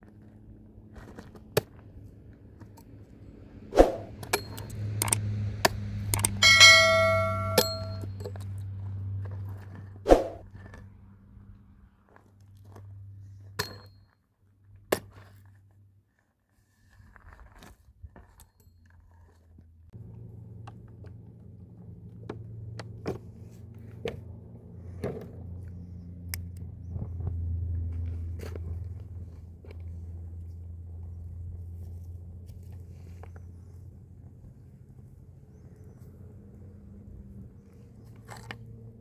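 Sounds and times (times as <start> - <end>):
low steady hum: 6.1 - 8.3.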